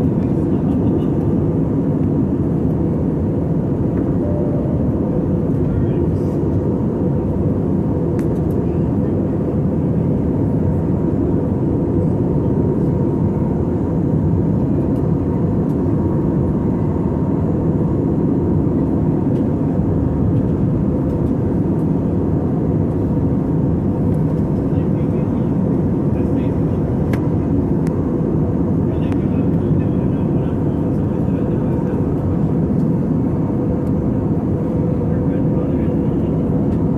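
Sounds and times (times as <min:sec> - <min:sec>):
jet cabin roar: 0:00.0 - 0:36.9
faint steady whine: 0:03.6 - 0:07.2.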